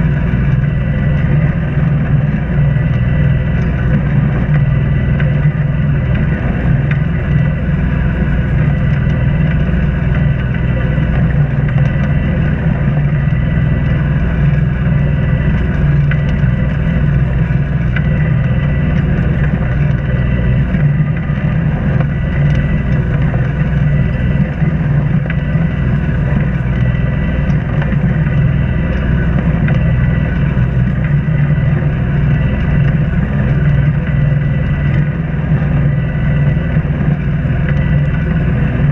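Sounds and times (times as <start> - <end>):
boat engine droning: 0.0 - 38.9.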